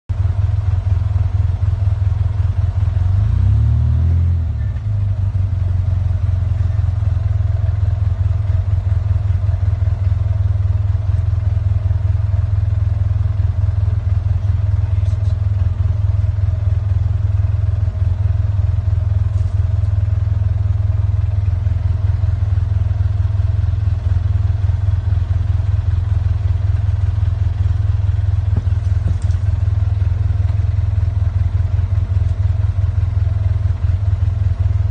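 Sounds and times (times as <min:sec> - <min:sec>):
motor engine idling: 0:00.1 - 0:34.9.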